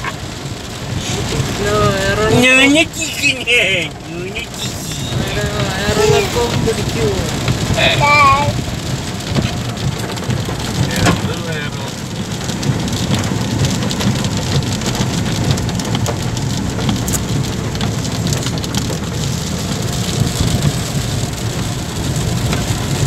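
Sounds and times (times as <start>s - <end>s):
car rumbling on road: 0.0s - 23.0s
heavy rain hitting a car: 0.0s - 23.0s.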